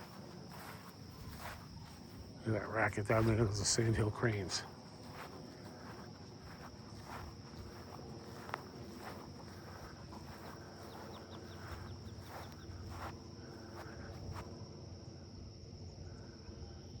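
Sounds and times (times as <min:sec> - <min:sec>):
high-pitched insect drone: 0:00.0 - 0:17.0
distant crane calls: 0:03.5 - 0:14.1.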